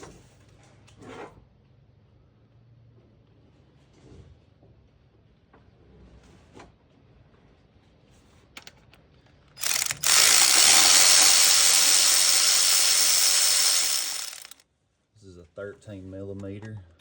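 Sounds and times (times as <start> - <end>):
power ratchet whirring: 9.6 - 14.6.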